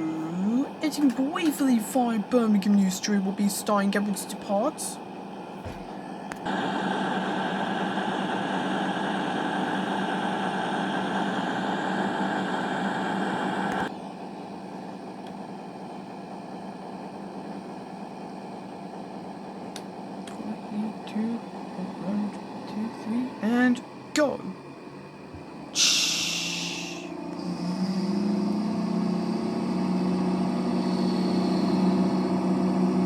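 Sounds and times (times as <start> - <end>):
diesel train idling: 0.0 - 33.0.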